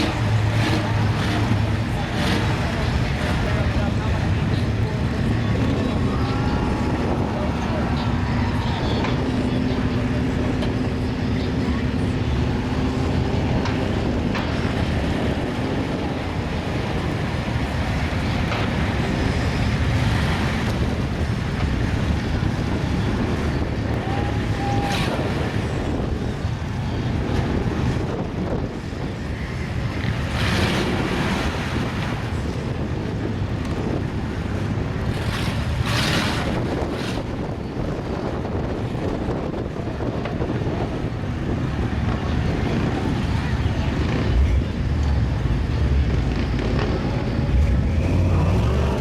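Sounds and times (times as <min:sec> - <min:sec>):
truck engines running: 0:00.0 - 0:49.0
wind buffeting microphone: 0:00.0 - 0:49.0.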